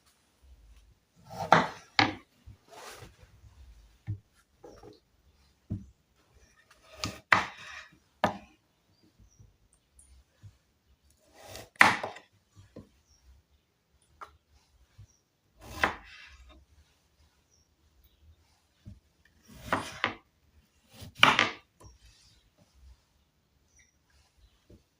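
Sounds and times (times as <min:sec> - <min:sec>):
knife chopping on cutting board: 0:15.6 - 0:16.1.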